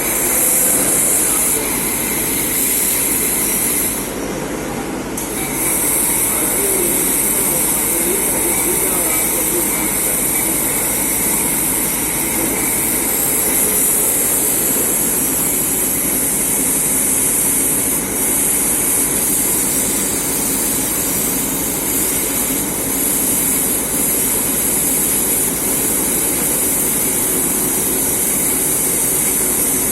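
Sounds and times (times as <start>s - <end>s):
machine mechanical hum: 0.0s - 29.9s.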